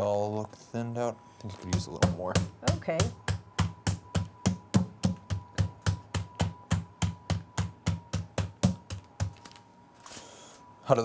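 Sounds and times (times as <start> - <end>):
meat being pounded: 1.7 - 9.5.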